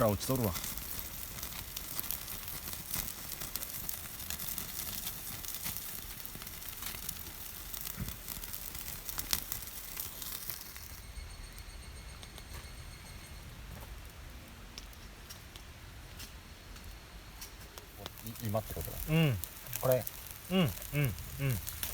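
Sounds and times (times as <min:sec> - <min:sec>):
fat crackling and popping on coals: 0:00.0 - 0:21.9
meat sizzling on a grill: 0:00.0 - 0:21.9.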